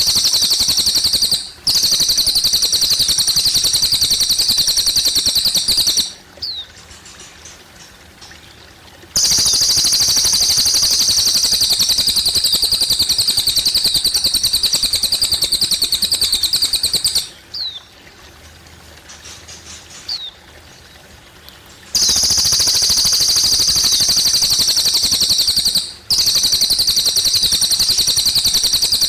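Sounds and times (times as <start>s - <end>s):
bird singing rapid trill: 0.0s - 6.7s, 9.2s - 17.8s, 22.0s - 29.0s
faint trickling water: 0.0s - 29.0s.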